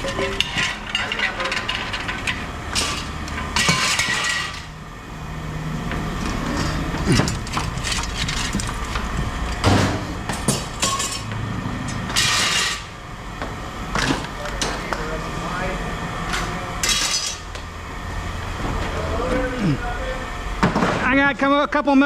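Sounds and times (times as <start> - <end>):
scrap metal clanking: 0.0 - 4.8, 6.3 - 12.9.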